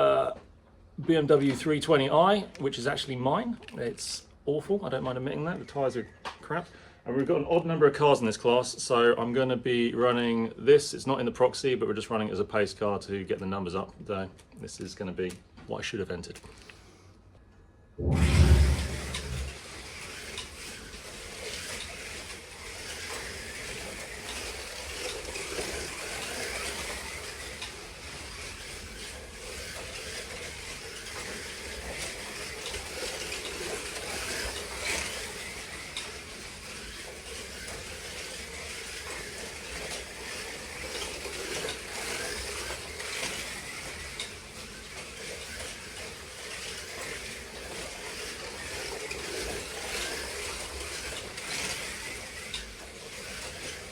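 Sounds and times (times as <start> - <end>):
whir of small electric motors: 20.2 - 53.9.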